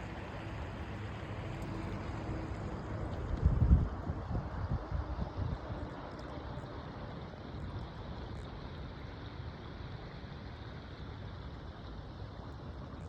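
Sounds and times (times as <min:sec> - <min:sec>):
faint ticks: 0:05.8 - 0:06.5.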